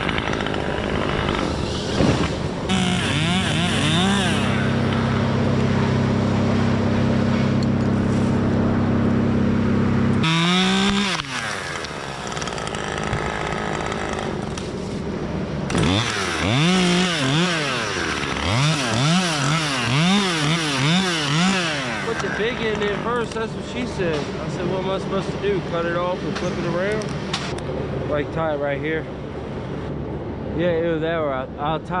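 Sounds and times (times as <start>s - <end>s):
two-stroke chainsaw revving: 0.0s - 8.0s, 9.6s - 14.6s, 15.7s - 23.4s.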